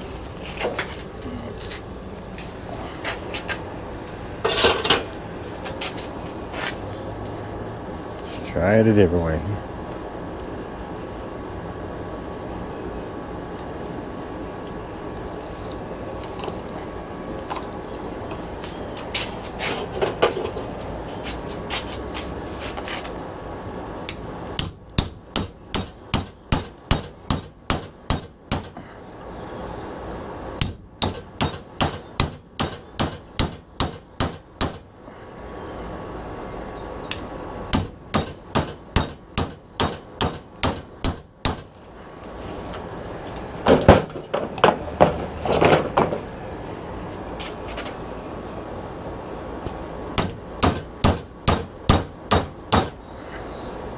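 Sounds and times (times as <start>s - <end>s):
hammer striking metal punch: 24.1s - 28.8s, 30.6s - 34.8s, 37.1s - 41.7s, 50.2s - 53.0s
light knocks and handling: 42.6s - 46.3s.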